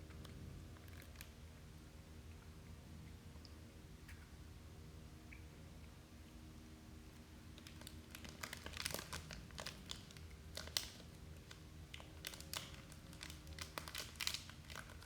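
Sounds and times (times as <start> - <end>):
low steady hum: 0.0 - 15.0
plastic wrapper crinkling: 7.5 - 15.0.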